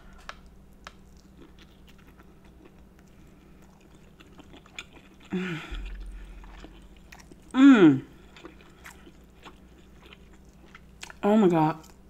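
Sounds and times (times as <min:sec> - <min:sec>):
close chewing: 0:00.2 - 0:12.0
person humming: 0:05.3 - 0:06.0, 0:07.5 - 0:08.2.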